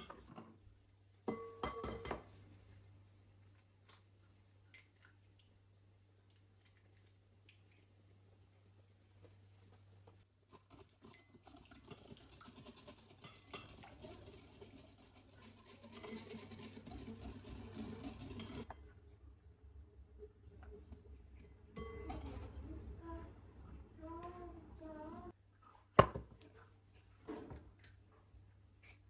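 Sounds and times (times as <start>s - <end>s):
low steady hum: 0.0s - 25.6s
kitchen utensils and dishes clinking: 1.3s - 2.4s, 10.5s - 18.8s, 21.7s - 22.6s.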